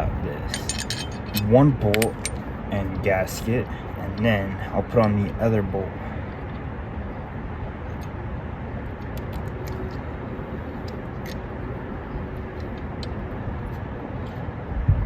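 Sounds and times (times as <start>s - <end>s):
low outdoor rumble: 0.0s - 15.0s
small metal parts clicking: 0.4s - 2.4s.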